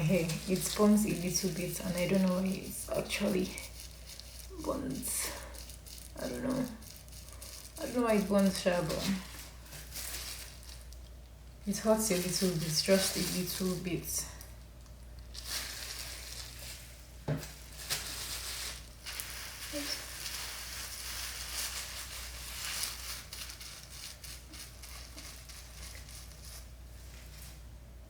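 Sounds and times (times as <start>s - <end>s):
hands rustling through hair: 0.0s - 11.0s, 11.7s - 14.2s.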